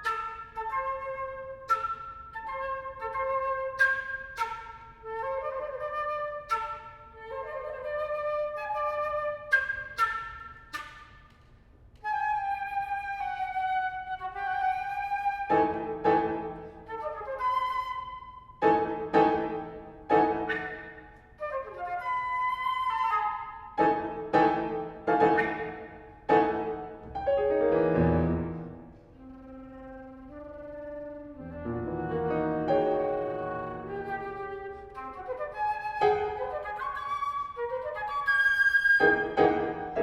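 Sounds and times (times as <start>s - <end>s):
flute playing: 0.0s - 40.0s
piano chords: 18.6s - 20.6s, 23.8s - 29.0s, 31.4s - 34.4s, 39.0s - 40.0s.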